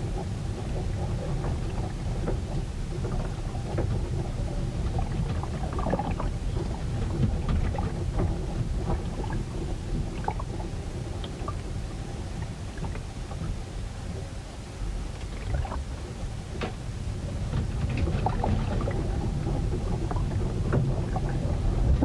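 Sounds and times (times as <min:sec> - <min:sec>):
wind and water against hull: 0:00.0 - 0:22.0
small knocks and splashes: 0:15.1 - 0:22.0.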